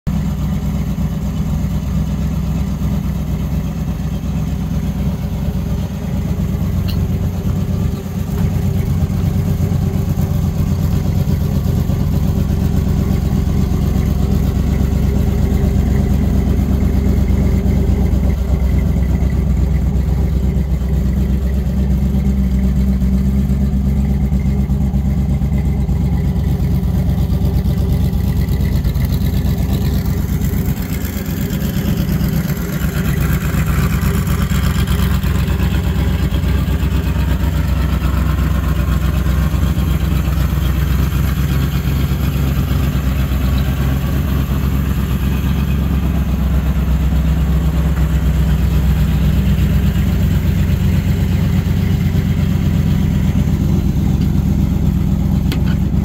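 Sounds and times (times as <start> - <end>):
car engine idling: 0.1 - 56.0.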